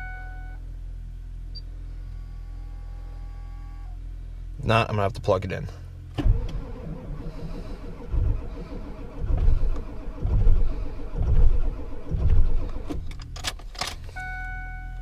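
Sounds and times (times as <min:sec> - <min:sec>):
diesel engine cranking: 0:06.1 - 0:14.3
starter motor whine: 0:06.2 - 0:13.1.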